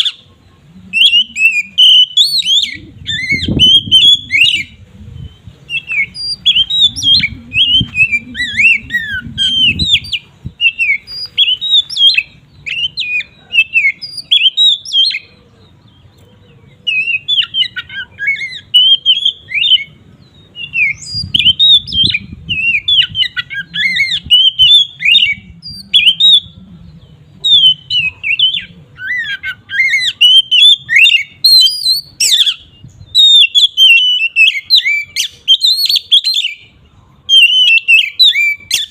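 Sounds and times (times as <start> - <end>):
bird singing varied chirps: 0.0 - 38.9.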